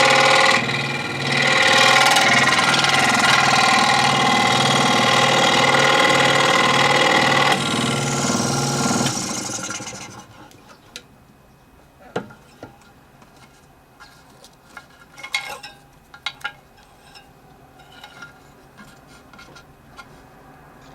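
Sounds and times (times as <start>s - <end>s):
scroll saw chattering: 0.0s - 10.2s.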